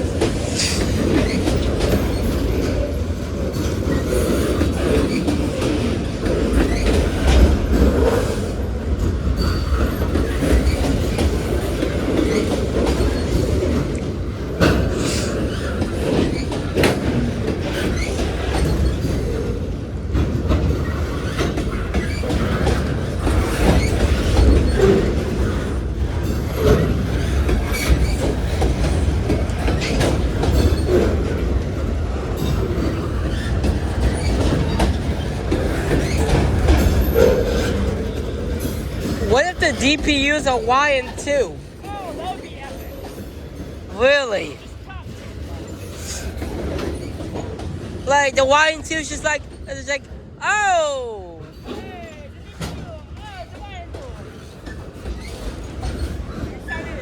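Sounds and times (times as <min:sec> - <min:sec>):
wheels clicking over rail joints: 0:00.0 - 0:50.2
train wheels rumbling on rail: 0:00.0 - 0:57.0.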